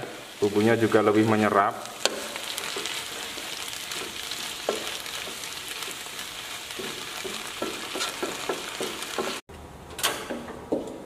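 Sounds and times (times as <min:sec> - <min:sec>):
vegetables sizzling in a pan: 0:00.0 - 0:09.4
spatula scraping a pan: 0:02.0 - 0:09.4.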